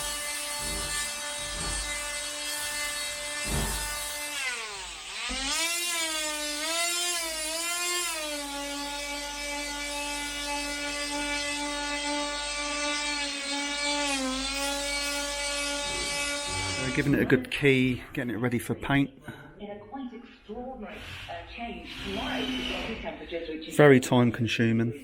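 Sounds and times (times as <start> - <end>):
electric sander on wood: 0.0 - 17.4.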